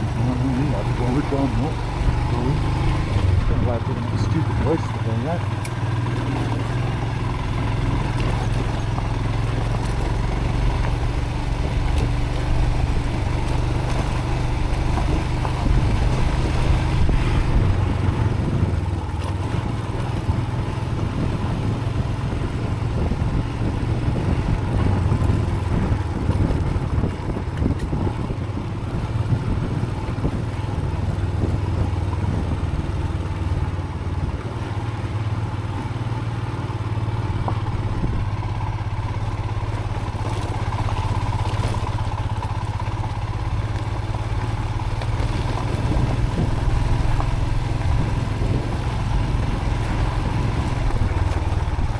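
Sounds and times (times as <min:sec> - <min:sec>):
motorcycle engine running: 0:00.0 - 0:51.9
wind noise: 0:06.2 - 0:32.9, 0:40.4 - 0:51.9.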